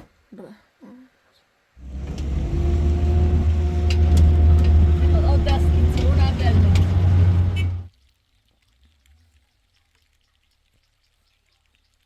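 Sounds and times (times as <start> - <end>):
vehicle engine hum: 1.8 - 7.9.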